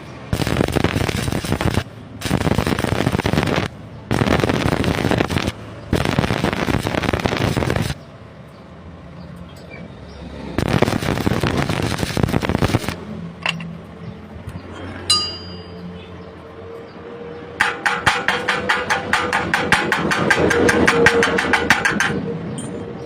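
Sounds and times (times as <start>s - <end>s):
welding arc crackling: 0.3s - 8.0s, 10.6s - 13.1s
rapid hammering on metal: 17.6s - 22.4s.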